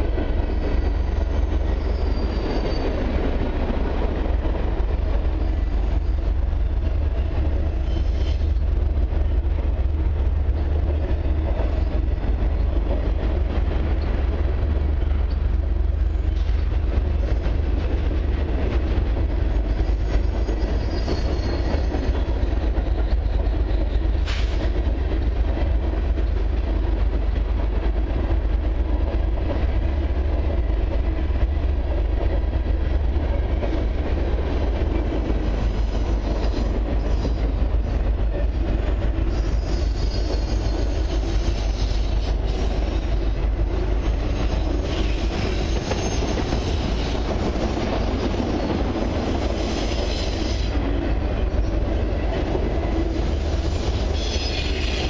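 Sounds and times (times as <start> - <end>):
steel wheels rumbling on rail: 0.0 - 55.0
faint high wheel squeal: 0.4 - 3.2, 7.7 - 8.6, 19.8 - 22.6, 39.2 - 43.4, 44.3 - 47.3, 53.3 - 55.0.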